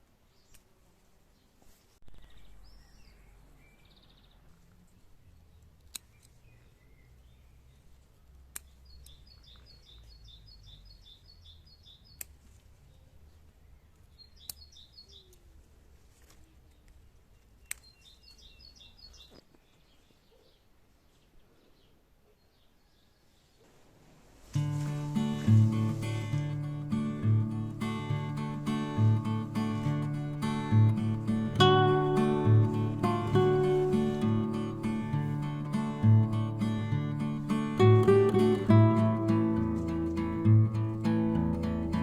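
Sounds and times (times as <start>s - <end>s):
bird chirps: 1.4s - 4.6s, 8.6s - 12.3s, 12.9s - 15.5s, 16.8s - 23.6s
sharp clicks: 5.8s - 6.4s, 8.5s - 9.2s, 17.6s - 17.9s.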